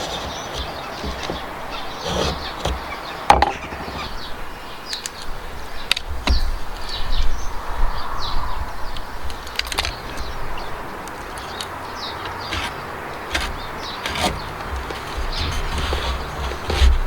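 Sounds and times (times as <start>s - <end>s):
birds chirping: 0.0s - 17.0s
sharp knocks on timber: 2.1s - 3.7s.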